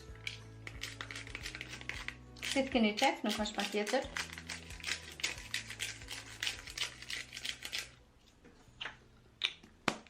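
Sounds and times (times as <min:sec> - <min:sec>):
spice grinder ratcheting: 0:00.1 - 0:07.9.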